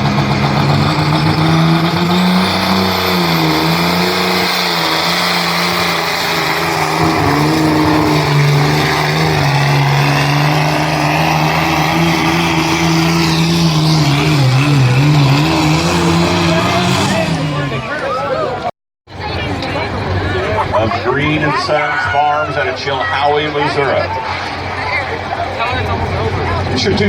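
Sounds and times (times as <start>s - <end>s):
tractor engine running under load: 0.0s - 16.6s.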